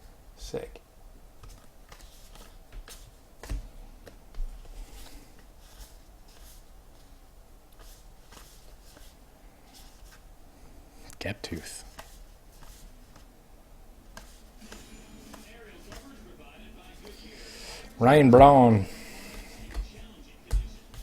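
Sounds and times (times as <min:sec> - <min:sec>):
trading cards swishing: 0:01.4 - 0:04.2, 0:07.7 - 0:10.2, 0:11.8 - 0:13.3, 0:14.1 - 0:16.3.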